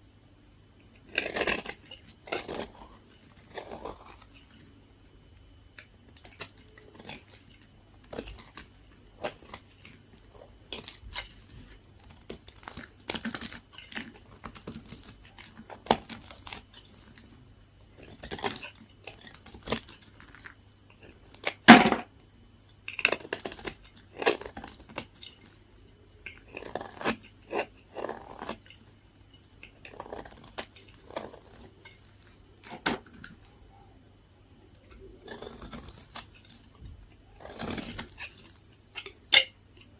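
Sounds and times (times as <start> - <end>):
blade cutting dry soap: 1.0 - 4.4, 26.3 - 28.8, 29.6 - 31.8, 35.2 - 36.7, 37.3 - 39.5.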